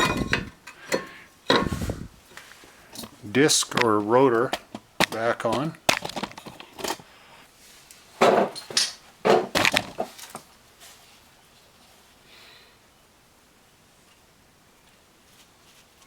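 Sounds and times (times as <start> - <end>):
loud metal clattering: 0.0 - 1.9
metal knocks and clanks: 0.0 - 2.0
faint handling noise: 0.0 - 12.1.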